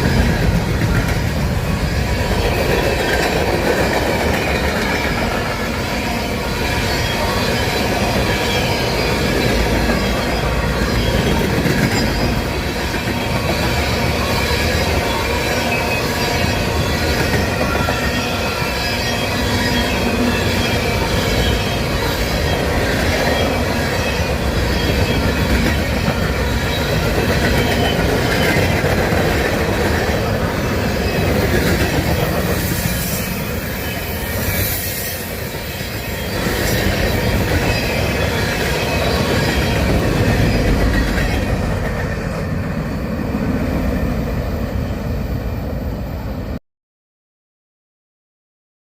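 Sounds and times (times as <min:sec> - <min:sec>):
wheels squealing on rails: 0:00.0 - 0:45.9
freight train rolling past: 0:00.0 - 0:46.6.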